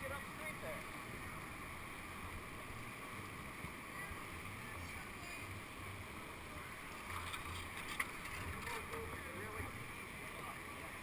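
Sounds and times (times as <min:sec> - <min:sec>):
rushing whitewater: 0:00.0 - 0:11.0.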